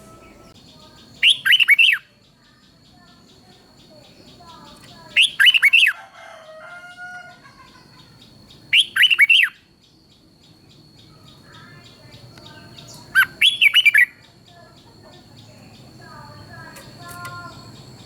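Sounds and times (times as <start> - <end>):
bird whistled song phrases: 0.0 - 2.2, 3.3 - 6.0, 8.0 - 9.6, 11.0 - 14.3
faint calls of other birds: 0.0 - 18.0
thin steady high tone: 0.0 - 18.0.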